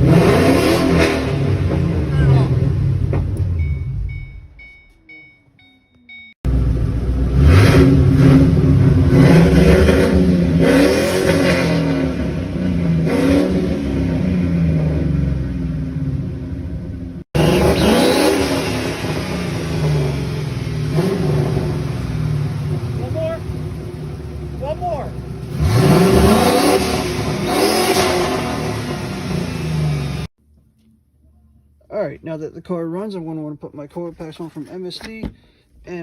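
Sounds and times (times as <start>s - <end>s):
car engine revving: 0.0s - 3.7s, 6.5s - 30.3s
car chime beeping: 3.4s - 6.4s.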